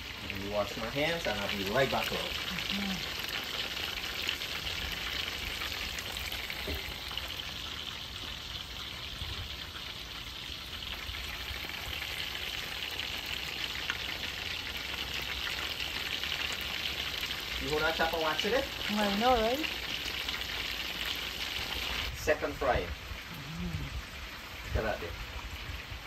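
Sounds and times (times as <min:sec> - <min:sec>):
chicken sizzling in oil: 0:00.0 - 0:26.0.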